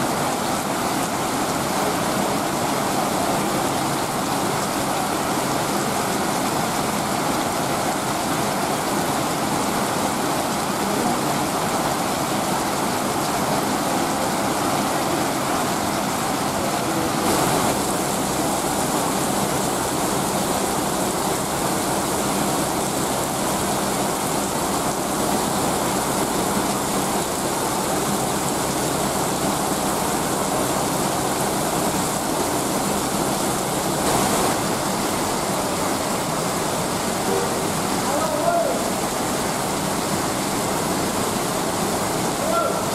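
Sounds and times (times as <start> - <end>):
heavy rain pouring: 0.0 - 42.9.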